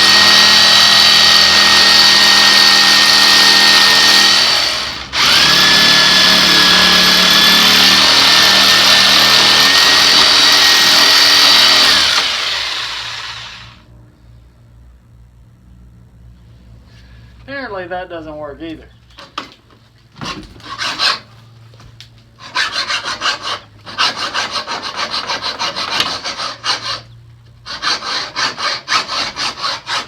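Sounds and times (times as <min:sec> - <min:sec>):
circular saw motor whining: 0:00.0 - 0:13.9.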